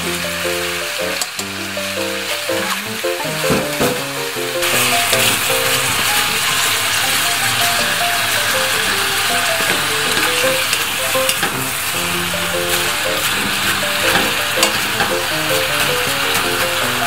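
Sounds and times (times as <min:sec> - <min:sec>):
meat and onions sizzling: 0:00.0 - 0:17.0.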